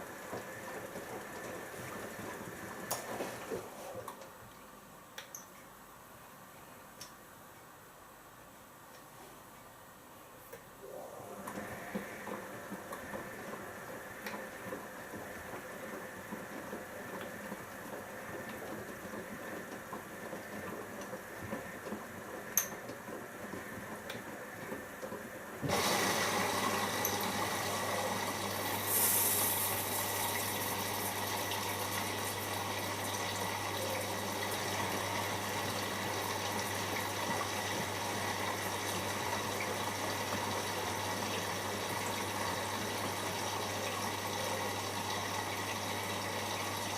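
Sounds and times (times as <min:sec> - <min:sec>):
water rushing into washing machine: 0:00.0 - 0:04.1, 0:10.8 - 0:46.9
hiss of water spray: 0:28.7 - 0:30.2.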